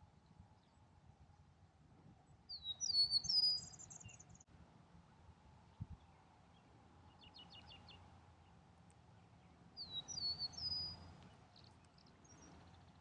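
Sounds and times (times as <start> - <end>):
meadowlark whistling song: 2.5 - 4.4, 9.8 - 13.0.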